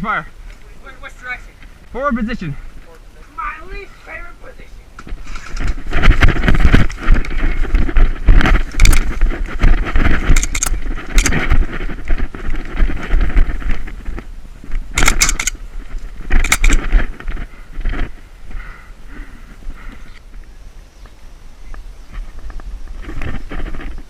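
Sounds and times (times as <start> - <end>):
low microphone rumble: 4.8 - 24.0
equipment rattling and scraping: 5.1 - 14.3, 15.0 - 18.3.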